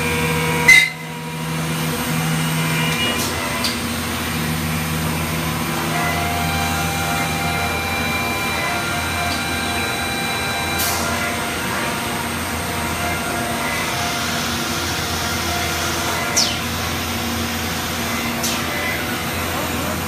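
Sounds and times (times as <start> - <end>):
machine motor hum and whine: 0.0 - 20.0.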